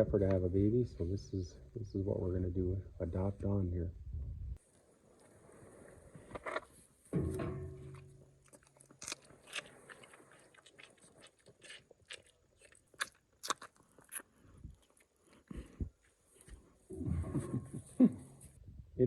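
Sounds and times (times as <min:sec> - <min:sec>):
low hum: 0:07.1 - 0:08.6
dry hay crunching: 0:07.8 - 0:12.9.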